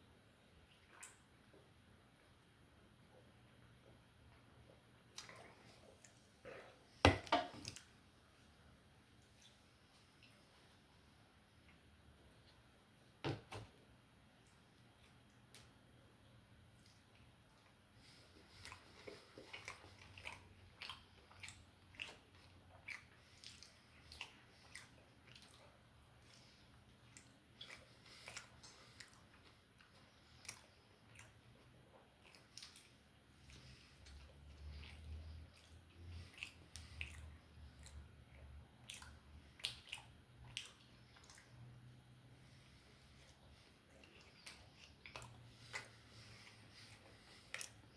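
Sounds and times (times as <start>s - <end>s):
low background hum: 0.0s - 47.9s
chewing and biting food: 16.8s - 41.8s, 43.1s - 47.9s
wet mouth clicks: 38.8s - 41.7s, 44.0s - 47.9s.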